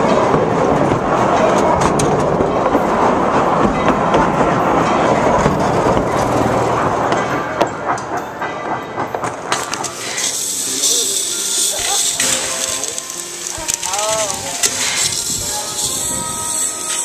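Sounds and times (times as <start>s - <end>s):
train wheels clattering on track: 0.0s - 17.0s.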